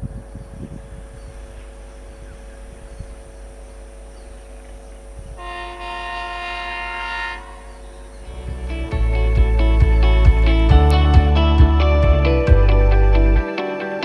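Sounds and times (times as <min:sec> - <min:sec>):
low engine hum: 0:00.0 - 0:13.4
vehicle horn blast: 0:05.4 - 0:07.9.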